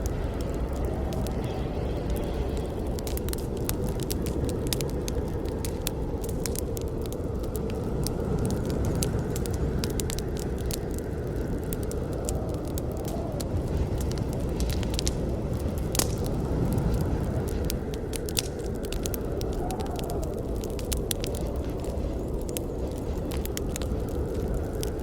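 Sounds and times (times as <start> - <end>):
burning wood crackling: 0.0 - 25.0
fire roaring: 0.0 - 25.0.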